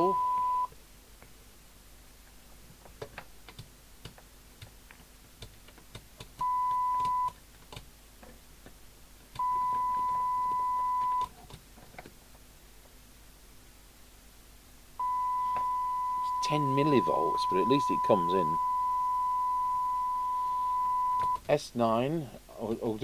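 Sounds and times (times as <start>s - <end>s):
test tone from radio speaker: 0.0s - 0.7s, 6.4s - 7.4s, 9.4s - 11.3s, 15.0s - 21.4s
small clicks: 2.8s - 9.8s.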